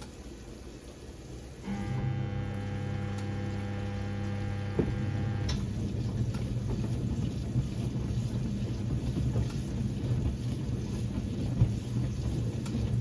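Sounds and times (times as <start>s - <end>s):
washing machine motor humming: 0.2s - 13.0s
water and laundry sloshing: 4.8s - 13.0s.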